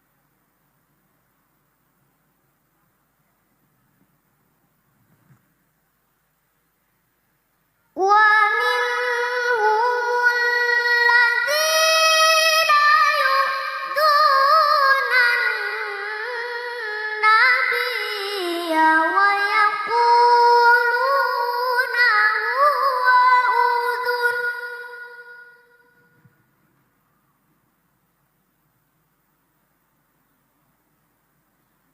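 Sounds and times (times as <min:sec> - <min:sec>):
child reciting melodically: 0:07.9 - 0:25.8.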